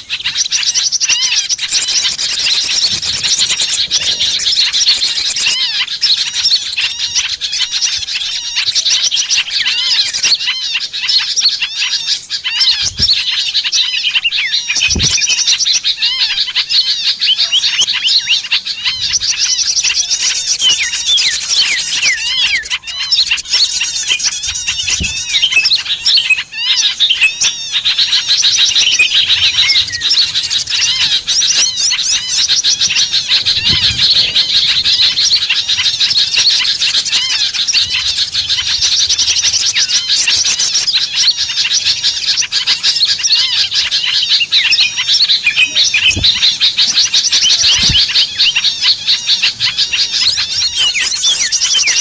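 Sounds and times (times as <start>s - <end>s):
songbirds chirping chorus: 0.0s - 52.0s
low thumps: 46.0s - 46.9s.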